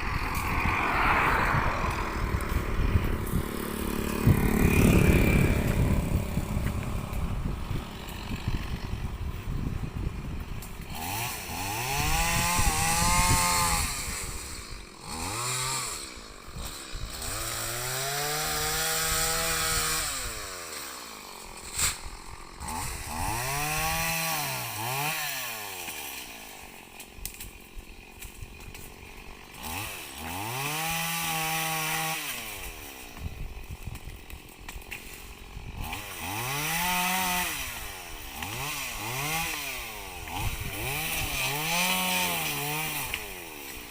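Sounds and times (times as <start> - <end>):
chainsaw revving and idling: 0.0 - 43.9.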